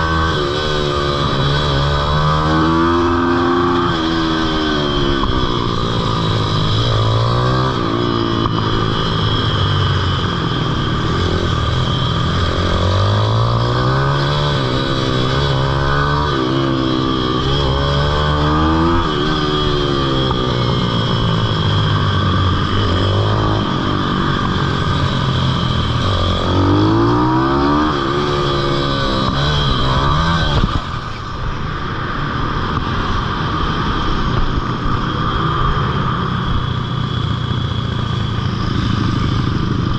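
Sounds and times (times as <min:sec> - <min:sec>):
pitbike engine revving: 0:10.2 - 0:31.0.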